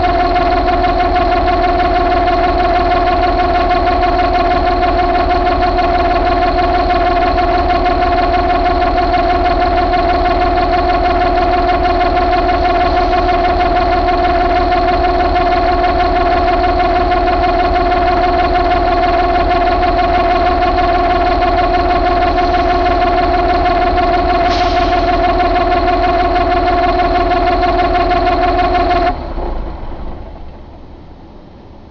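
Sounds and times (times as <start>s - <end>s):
diesel engine idling: 0.0s - 31.9s.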